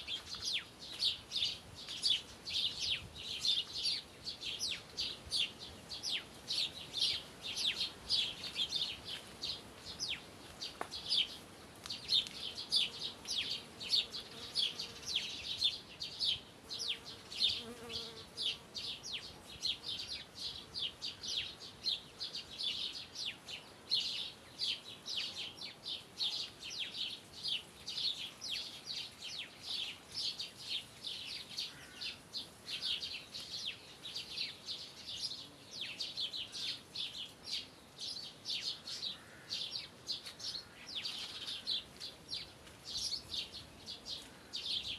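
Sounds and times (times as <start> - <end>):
small birds chirping: 0.0 - 44.9.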